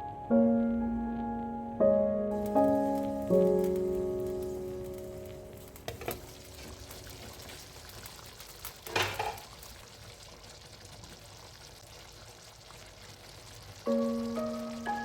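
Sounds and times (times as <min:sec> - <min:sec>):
stirring noise: 0:02.4 - 0:09.9
food sizzling in a pan: 0:02.4 - 0:15.0.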